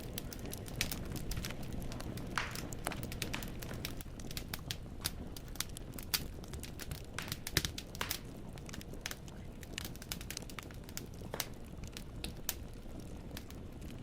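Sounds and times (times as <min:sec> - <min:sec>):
firewood crackling in fireplace: 0:00.0 - 0:14.0.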